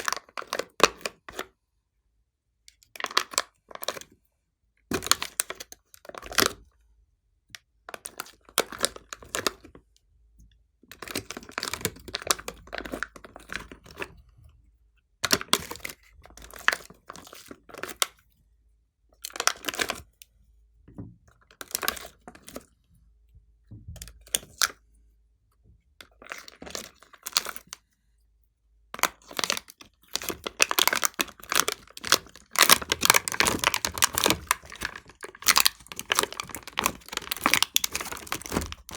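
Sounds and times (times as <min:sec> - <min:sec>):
slime squishing and popping: 0:29.0 - 0:38.9.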